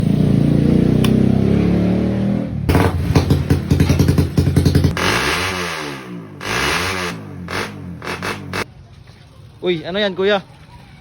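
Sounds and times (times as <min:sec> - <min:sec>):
motorcycle engine revving: 0:00.0 - 0:08.7.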